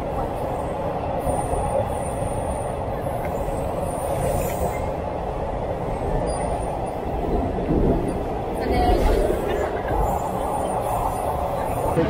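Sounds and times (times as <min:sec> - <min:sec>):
train carriage rumble: 0:00.0 - 0:12.0.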